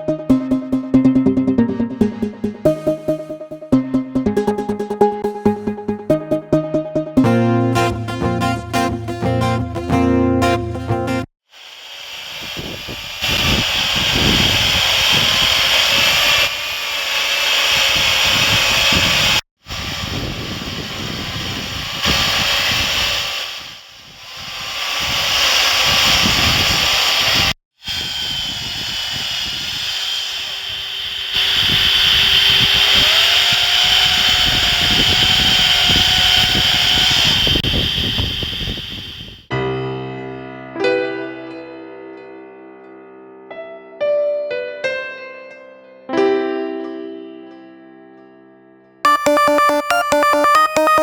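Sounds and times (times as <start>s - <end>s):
chainsaw carving wood: 11.6s - 39.4s.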